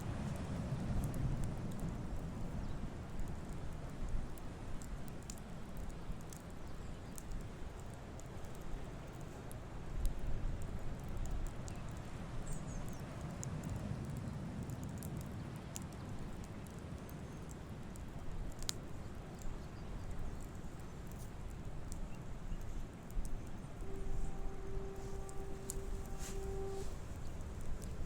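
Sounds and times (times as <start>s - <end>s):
campfire crackling and popping: 0.0s - 28.0s
steady low rumble: 23.6s - 28.0s.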